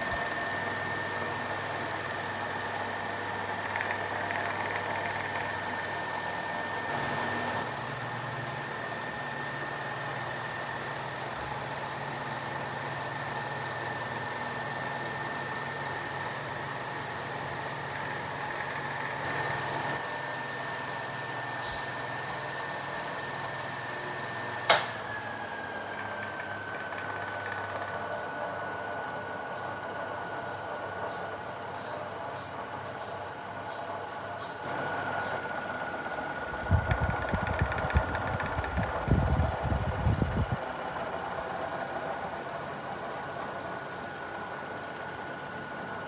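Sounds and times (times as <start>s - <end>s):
box fan humming with high whine: 0.0s - 46.0s
sharp click: 24.7s - 25.1s.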